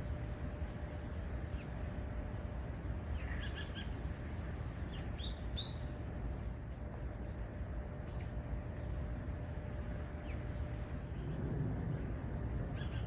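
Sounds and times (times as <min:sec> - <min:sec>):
steady low rumble: 0:00.0 - 0:13.0
wild birds calling: 0:03.0 - 0:04.2, 0:04.8 - 0:13.0.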